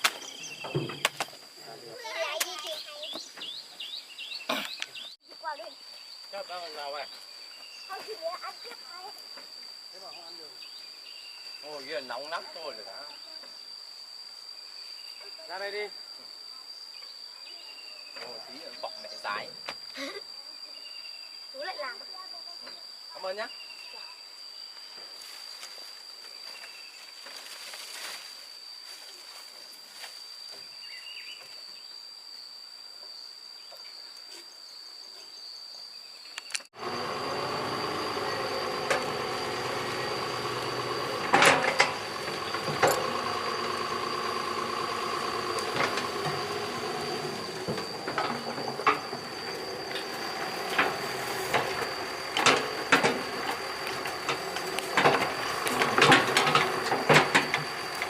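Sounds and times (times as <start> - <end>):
excavator diesel engine running: 36.8 - 58.0
metallic clanks and knocks: 38.8 - 44.0, 44.8 - 58.0.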